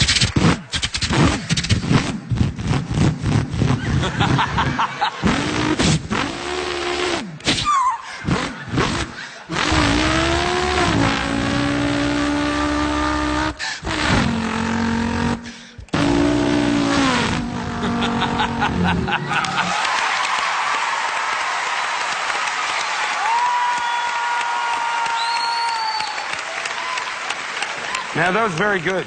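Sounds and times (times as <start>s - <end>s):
man imitating car engine: 5.2s - 19.7s.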